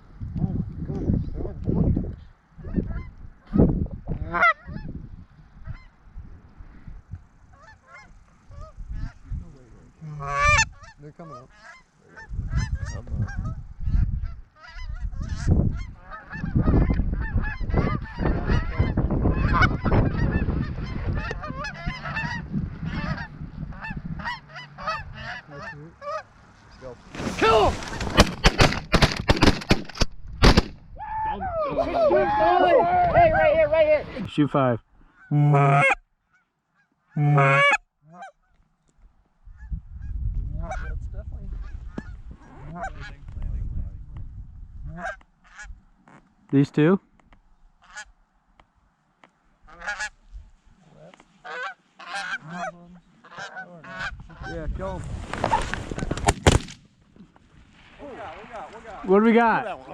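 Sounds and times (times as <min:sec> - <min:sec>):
wind rumble on microphone: 0:00.0 - 0:07.6, 0:08.4 - 0:09.8, 0:12.2 - 0:25.3, 0:30.2 - 0:34.3, 0:39.4 - 0:45.9, 0:53.9 - 0:56.4
geese honking: 0:02.6 - 0:05.0, 0:07.4 - 0:09.3, 0:10.0 - 0:29.0, 0:35.1 - 0:38.6, 0:40.6 - 0:41.0, 0:41.6 - 0:43.3, 0:44.9 - 0:45.8, 0:47.8 - 0:48.2, 0:49.6 - 0:54.6.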